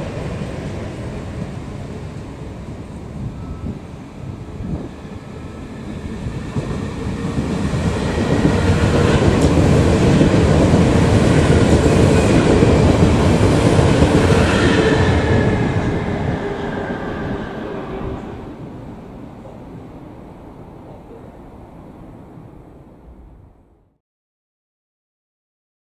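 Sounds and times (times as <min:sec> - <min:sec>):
train wheels clattering on rails: 0:04.6 - 0:16.9.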